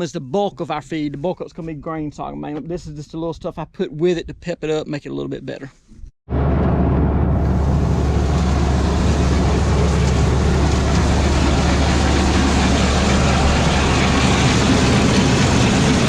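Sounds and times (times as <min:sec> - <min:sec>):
tractor engine drone: 0:06.3 - 0:16.0
feed mill grinding: 0:07.7 - 0:16.0.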